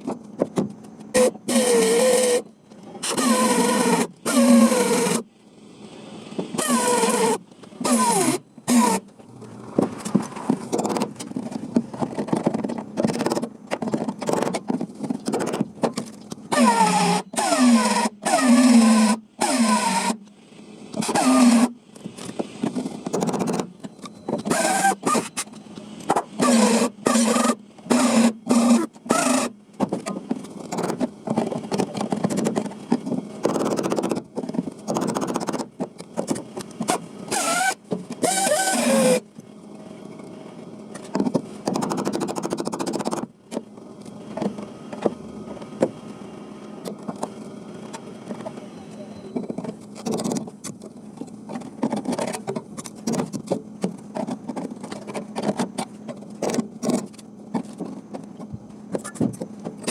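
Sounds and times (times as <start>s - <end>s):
power tool on sheet metal: 1.2s - 5.2s, 6.5s - 9.1s, 16.5s - 20.2s, 21.0s - 21.8s, 24.5s - 25.4s, 26.4s - 29.6s, 36.9s - 39.2s.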